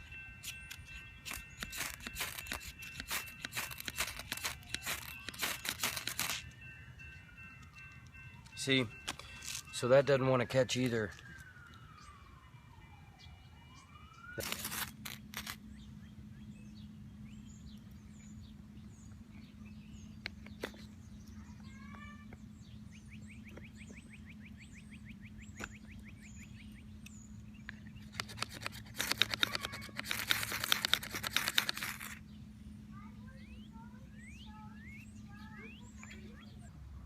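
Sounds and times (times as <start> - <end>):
bird chirps: 0.0 - 9.5, 15.6 - 29.9, 31.5 - 36.8
distant siren wailing: 0.0 - 17.2, 33.3 - 37.0
ferro rod scraping: 0.4 - 6.5, 14.4 - 15.6, 28.1 - 32.2.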